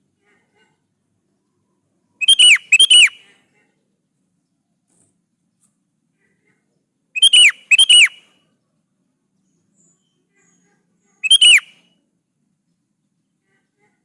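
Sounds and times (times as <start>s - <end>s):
bird singing whistled notes: 2.2s - 3.2s, 7.2s - 8.3s, 11.2s - 12.0s.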